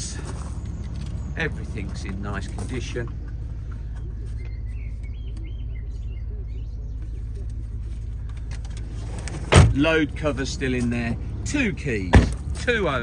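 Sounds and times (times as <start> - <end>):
diesel engine idling: 0.0 - 13.0
faint bird chirps: 3.8 - 8.2.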